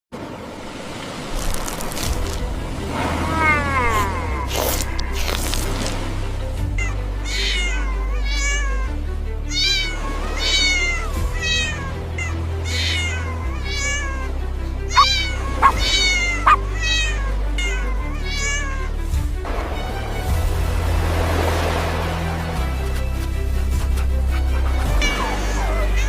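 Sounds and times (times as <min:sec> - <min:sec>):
background music with low bass: 0:02.0 - 0:26.0
cat meowing: 0:03.2 - 0:05.0, 0:07.3 - 0:08.7, 0:14.9 - 0:18.8
sharp cat cries: 0:03.2 - 0:05.2, 0:15.0 - 0:18.8.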